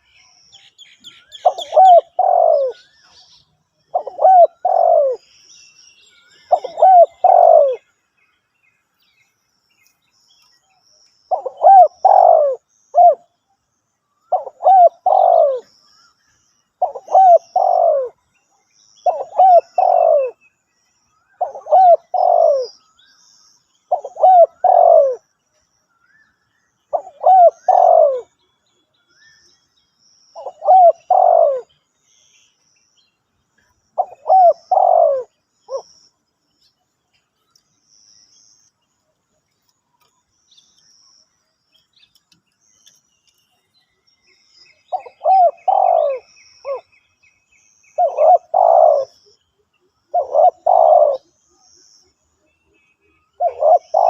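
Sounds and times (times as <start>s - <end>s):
small birds chirping: 0.0s - 54.0s
dove cooing: 1.3s - 2.9s, 3.9s - 5.3s, 6.4s - 7.8s, 11.3s - 13.3s, 14.3s - 15.7s, 16.8s - 18.2s, 19.0s - 20.4s, 21.4s - 22.8s, 23.9s - 25.3s, 26.9s - 28.4s, 30.4s - 31.7s, 34.0s - 35.8s, 44.9s - 46.9s, 48.0s - 49.3s, 50.1s - 51.4s, 53.4s - 54.0s.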